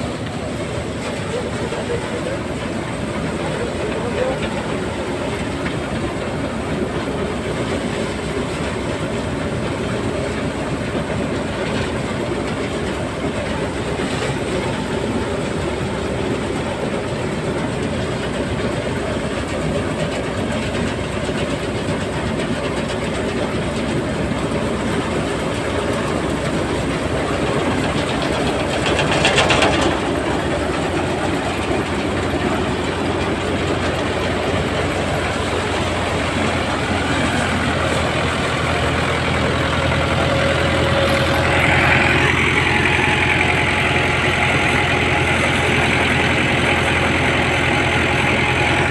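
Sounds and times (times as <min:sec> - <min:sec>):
tractor diesel engine running: 0:00.0 - 0:48.9
thresher rattling clatter: 0:18.0 - 0:48.9.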